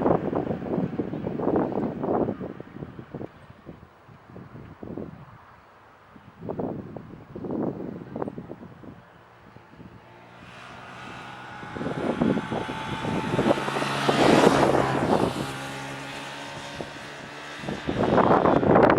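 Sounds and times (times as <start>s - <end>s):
wind buffeting microphone: 0.0s - 18.9s
turboprop engines droning: 9.1s - 18.9s.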